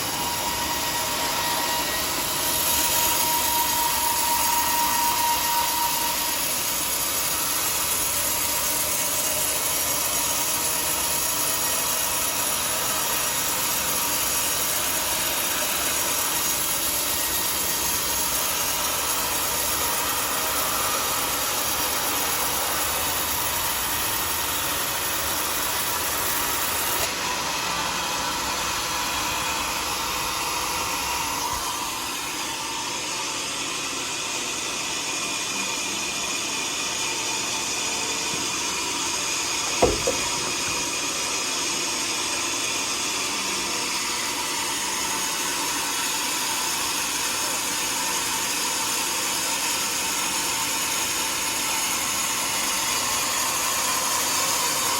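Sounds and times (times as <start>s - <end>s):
sawmill machinery sawing: 0.0s - 54.9s
sharp knock: 39.8s - 40.9s.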